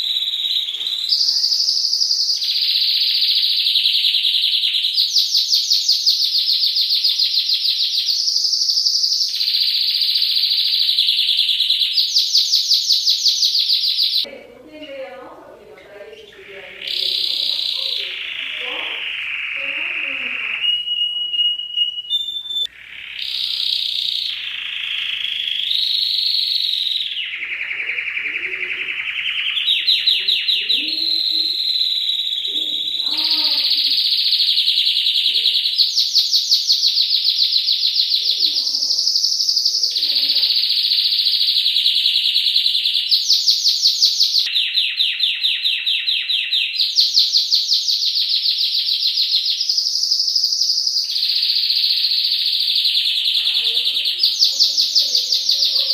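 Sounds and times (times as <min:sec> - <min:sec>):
canary singing rapid trills: 0:00.0 - 0:55.9.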